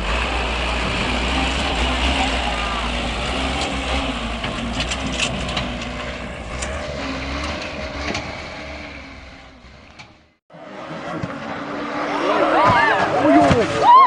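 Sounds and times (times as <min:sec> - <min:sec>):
heavy truck engine rumbling: 0:00.0 - 0:14.0
rattles and knocks: 0:03.2 - 0:10.3.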